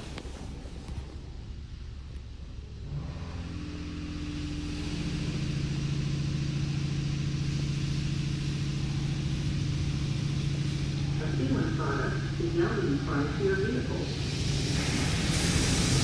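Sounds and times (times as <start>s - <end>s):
car wash motor hum: 0.1s - 16.0s
water spray hiss: 14.4s - 16.0s.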